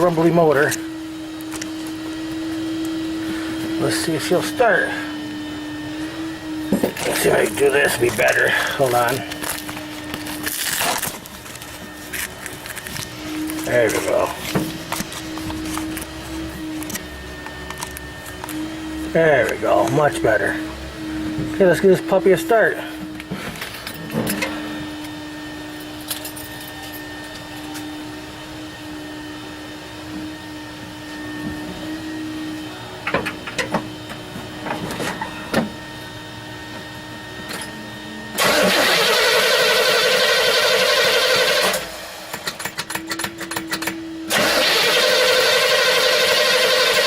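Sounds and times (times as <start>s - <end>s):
starter motor cranking engine: 6.8s - 20.5s, 38.4s - 47.0s.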